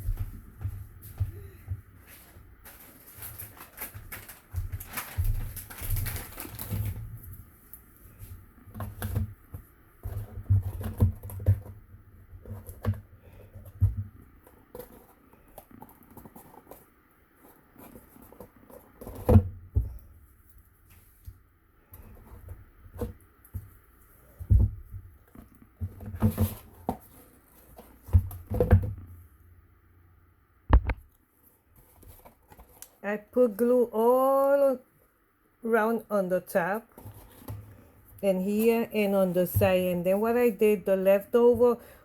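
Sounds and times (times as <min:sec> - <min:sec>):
paper rustling and scraping: 0:02.0 - 0:07.4, 0:14.4 - 0:19.3
light taps and thuds on table: 0:30.7 - 0:31.0.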